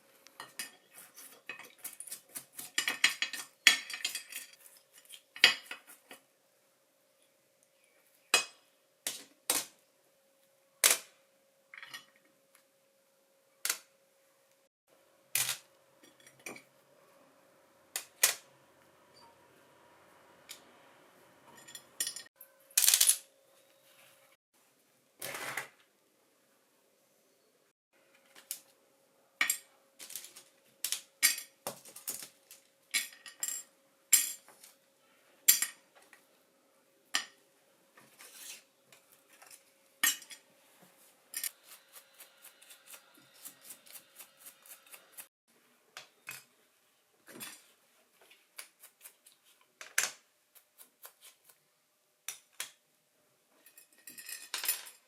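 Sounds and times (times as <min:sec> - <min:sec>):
metal tools clinking on workbench: 0:21.5 - 0:23.2, 0:53.6 - 0:55.0.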